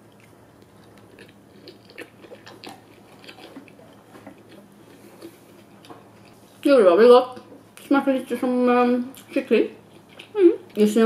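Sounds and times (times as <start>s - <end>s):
person chewing sushi: 0.0s - 6.5s, 9.2s - 10.4s.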